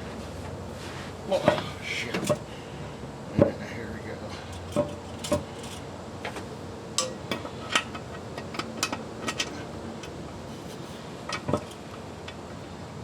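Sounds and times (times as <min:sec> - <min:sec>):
metal pan and bolts clinking: 0:07.0 - 0:10.2.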